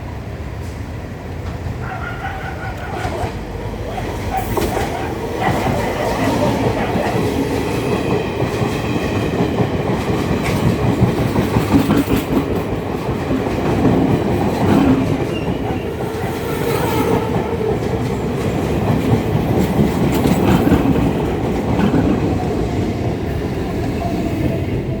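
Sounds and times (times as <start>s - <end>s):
train rumbling past: 0.0s - 25.0s.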